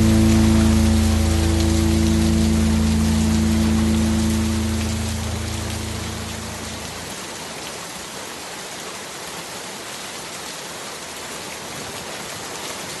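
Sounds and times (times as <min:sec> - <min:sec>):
held low music chord: 0:00.0 - 0:07.1
rain hiss: 0:00.0 - 0:13.0.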